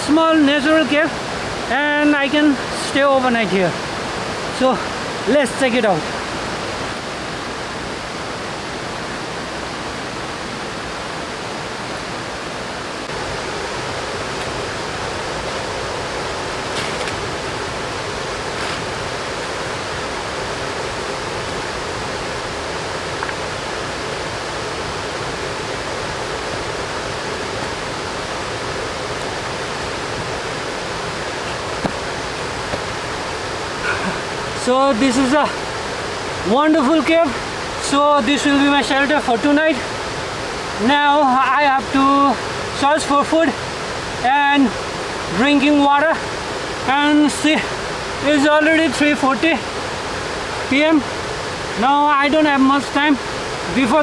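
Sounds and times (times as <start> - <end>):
mountain river rushing: 0.0 - 54.0
faint taps: 31.7 - 32.0.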